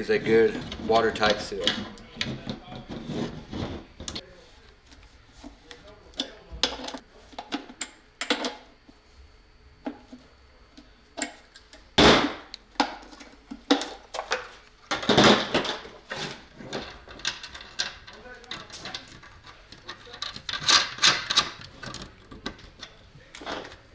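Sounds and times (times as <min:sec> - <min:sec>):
tools clicking and knocking: 0:16.7 - 0:23.8.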